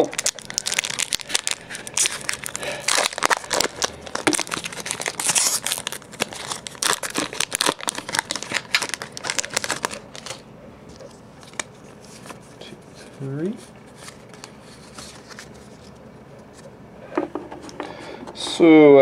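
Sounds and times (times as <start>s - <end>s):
foil wrapper crinkling and tearing: 0.0s - 12.4s, 13.8s - 16.0s.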